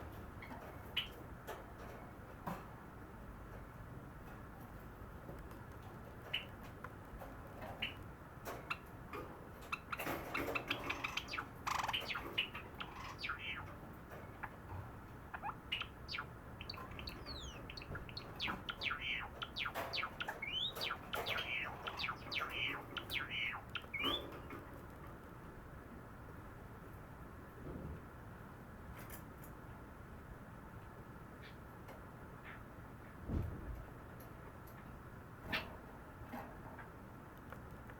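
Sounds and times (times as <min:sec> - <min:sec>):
sparrow chirping and clicking: 0:00.4 - 0:01.6, 0:05.4 - 0:25.0.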